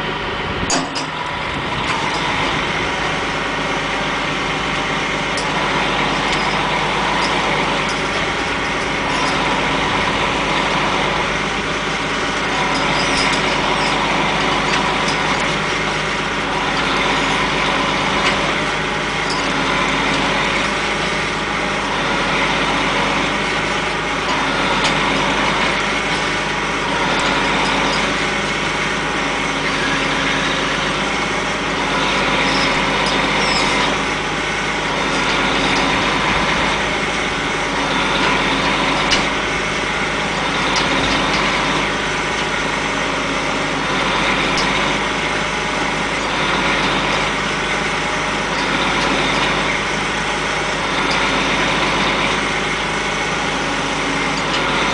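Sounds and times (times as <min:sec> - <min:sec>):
machine engine running: 0:00.0 - 0:54.9.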